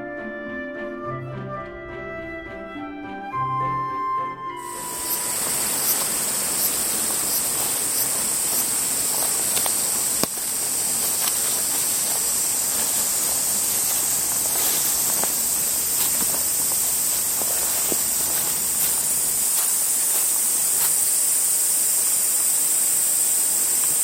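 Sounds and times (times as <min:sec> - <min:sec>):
outdoor background hiss: 0:04.6 - 0:24.0
light ticks: 0:04.8 - 0:19.0.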